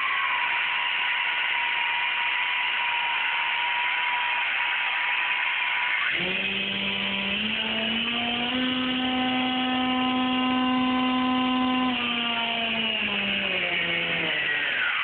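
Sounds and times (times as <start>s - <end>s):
model airplane motor humming: 6.0s - 15.0s.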